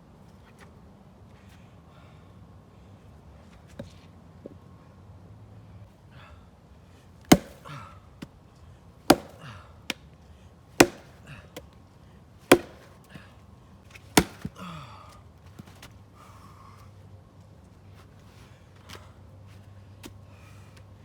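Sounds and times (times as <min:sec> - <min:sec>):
axe chopping wood: 0:07.3 - 0:07.8, 0:09.1 - 0:10.0, 0:10.8 - 0:11.7, 0:12.5 - 0:13.2, 0:14.1 - 0:14.6.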